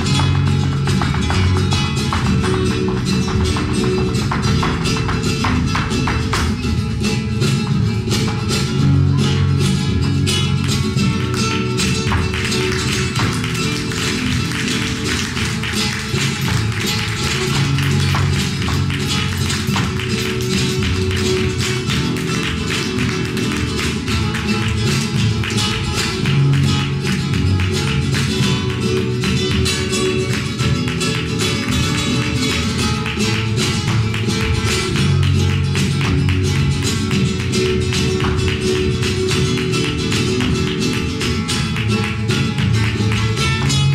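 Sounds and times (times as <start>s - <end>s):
dancer's footwork taps: 0.0s - 8.8s, 10.5s - 43.9s
flamenco guitar playing: 0.0s - 43.9s.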